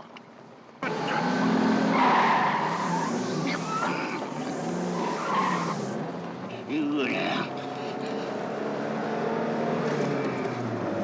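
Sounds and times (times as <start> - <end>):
car engine noise: 0.0 - 11.0
tyres squealing: 0.9 - 6.0.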